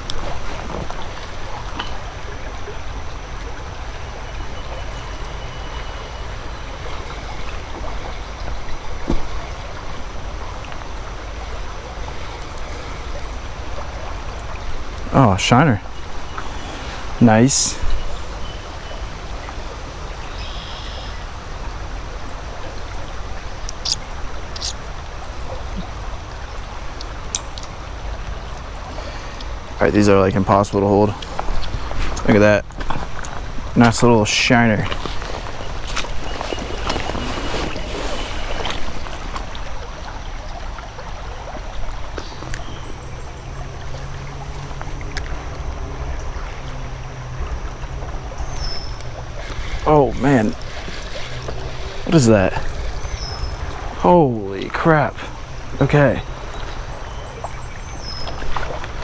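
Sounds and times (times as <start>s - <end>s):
creek water running: 0.0s - 59.0s.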